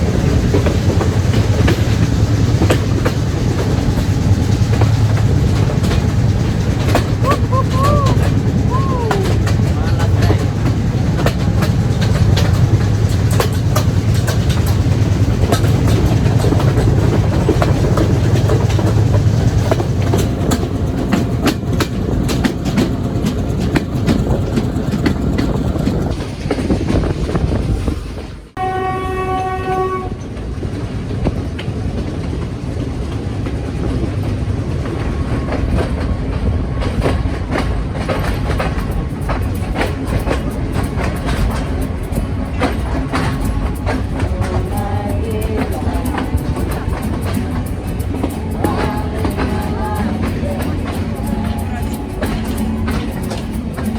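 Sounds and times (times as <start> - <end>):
wheels clicking over track: 0.0 - 28.0, 28.6 - 53.9
train rumbling on rails: 0.0 - 53.9
locomotive horn: 28.6 - 30.3.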